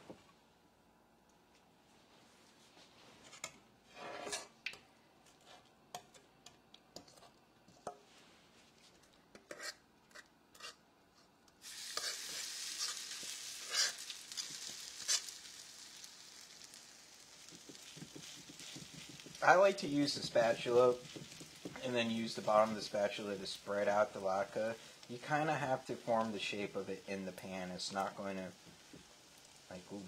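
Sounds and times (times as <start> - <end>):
batter sizzling in oil: 11.6 - 30.0.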